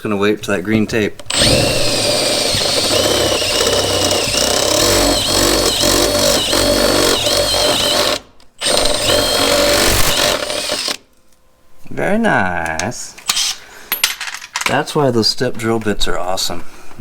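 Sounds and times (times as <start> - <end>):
electric drill drilling sheet metal: 1.3 - 11.0.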